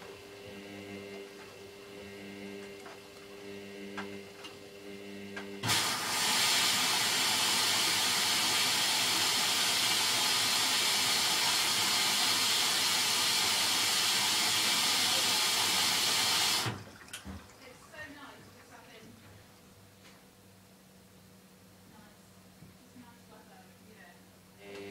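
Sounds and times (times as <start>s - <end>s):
washing machine humming: 0.0s - 22.1s, 24.4s - 24.9s
water spraying into drum: 5.6s - 17.6s.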